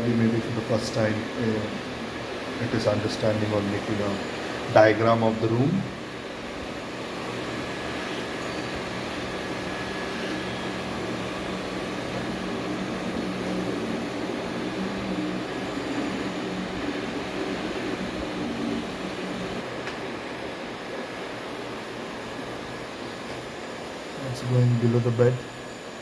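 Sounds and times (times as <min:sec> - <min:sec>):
robot vacuum motor hum: 0:00.2 - 0:19.6.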